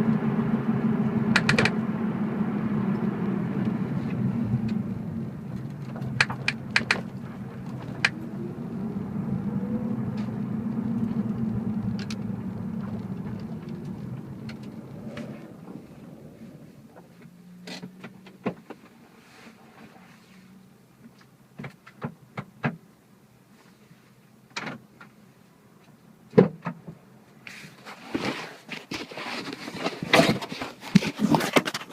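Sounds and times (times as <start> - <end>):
car engine low drone: 0.0 - 21.6
sharp clicks from car rear: 1.3 - 1.8, 5.5 - 8.2.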